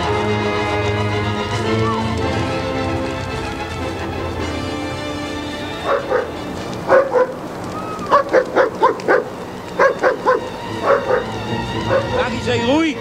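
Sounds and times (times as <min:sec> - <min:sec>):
background music: 0:00.0 - 0:13.0
dog barking: 0:05.8 - 0:07.5, 0:08.1 - 0:12.3.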